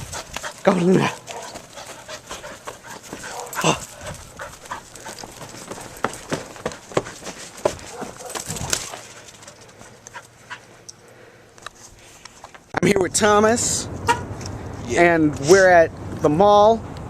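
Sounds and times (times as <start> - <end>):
dog panting: 0.0 - 10.9
clicks and scuffles: 0.1 - 11.0.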